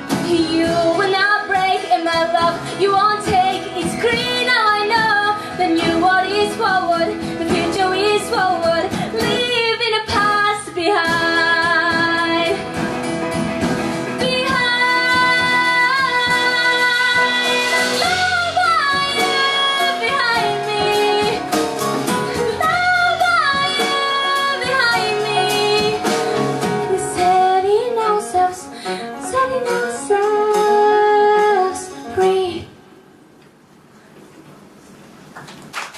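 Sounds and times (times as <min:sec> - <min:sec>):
live band playing: 0:00.0 - 0:32.9
drum and cymbal hits: 0:11.0 - 0:27.4.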